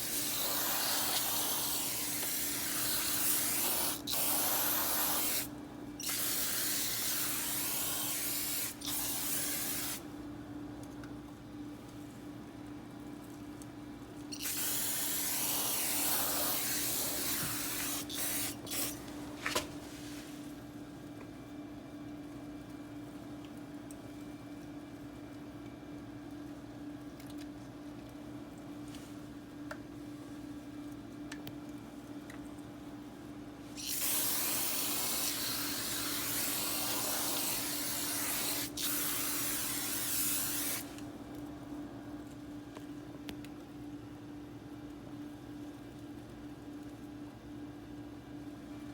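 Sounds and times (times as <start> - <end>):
aerosol spray can hissing: 0.0 - 10.0, 14.4 - 19.0, 33.8 - 40.9.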